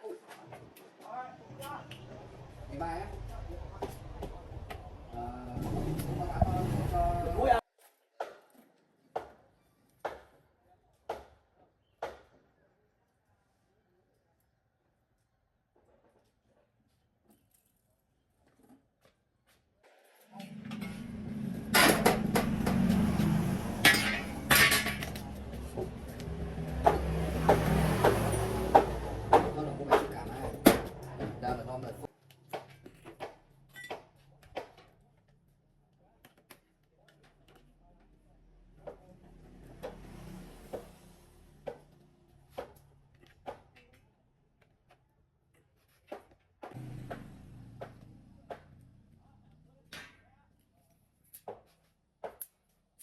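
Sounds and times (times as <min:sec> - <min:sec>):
metal tools clanking on metal: 0:23.8 - 0:25.2.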